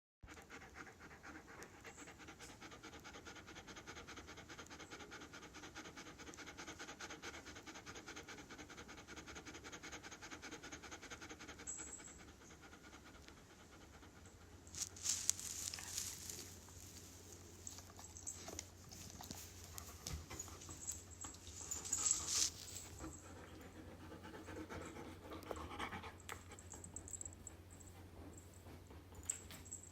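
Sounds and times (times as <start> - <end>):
dog panting fast: 0.3 - 16.5, 19.7 - 26.2
rustling noises: 14.5 - 23.5.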